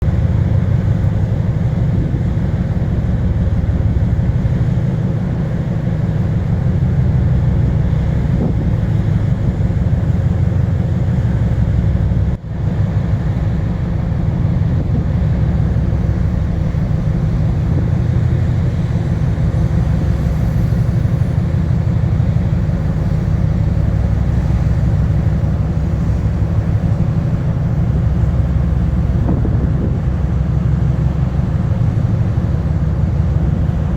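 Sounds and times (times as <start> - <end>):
ship engines low rumble: 0.0 - 33.9.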